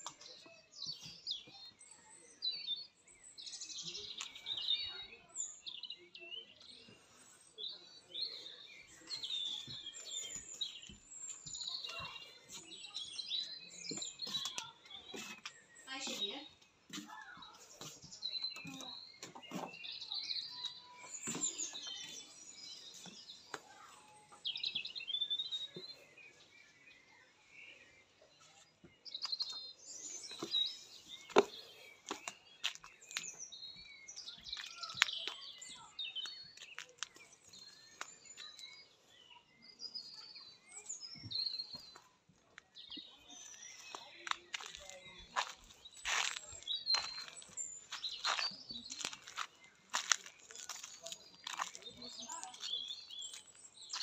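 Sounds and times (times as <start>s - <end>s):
songbirds singing and chirping: 0.0s - 54.0s.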